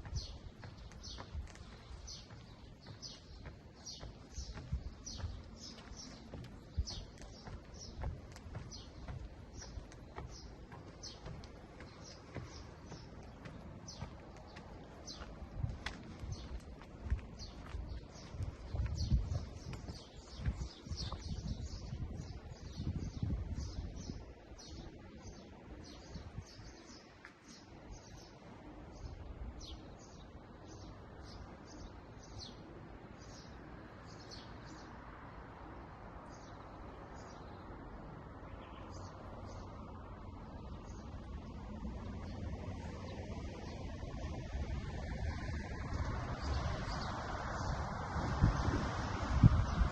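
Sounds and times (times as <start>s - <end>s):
low thuds and rumble: 0.0s - 23.7s
bird chirping: 0.0s - 28.4s.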